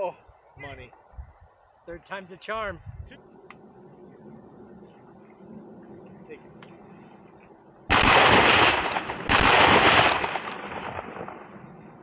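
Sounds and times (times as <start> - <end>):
shotgun blasts: 7.9 - 11.6.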